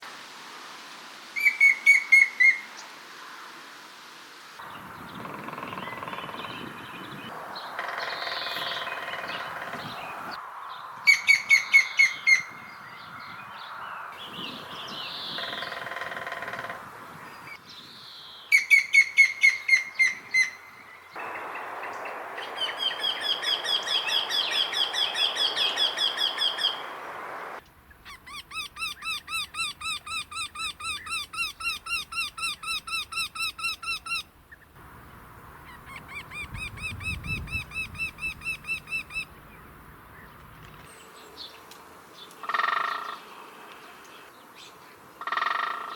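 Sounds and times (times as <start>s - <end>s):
birds calling repeated notes: 14.2s - 16.8s, 27.9s - 45.9s.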